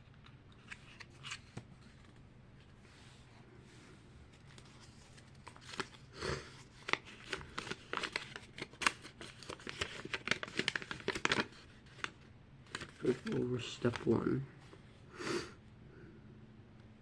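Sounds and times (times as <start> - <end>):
small clicks and crinkles: 4.3 - 6.0, 6.6 - 14.2
plastic packaging rustling: 4.4 - 14.4.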